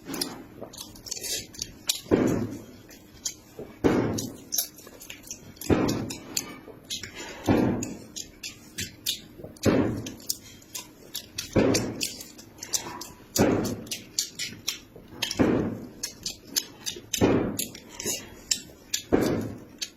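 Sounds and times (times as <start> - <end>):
loud chewing: 0.0 - 19.9.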